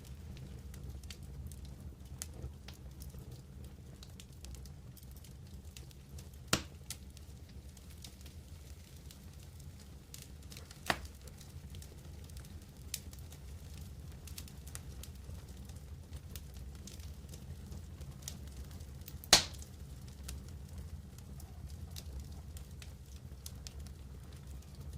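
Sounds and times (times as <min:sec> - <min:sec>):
campfire crackling and popping: 0:00.0 - 0:24.9
wood snapping loudly: 0:19.3 - 0:19.6.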